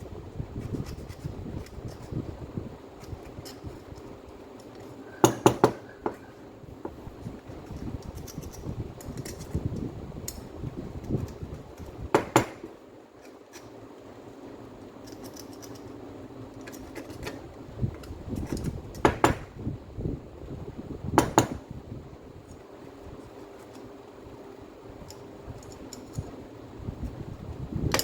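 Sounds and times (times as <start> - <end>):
tools being handled: 0.6 - 2.3, 2.9 - 10.4, 11.0 - 12.0, 13.1 - 13.8, 15.0 - 19.1, 22.4 - 24.0, 25.0 - 26.4.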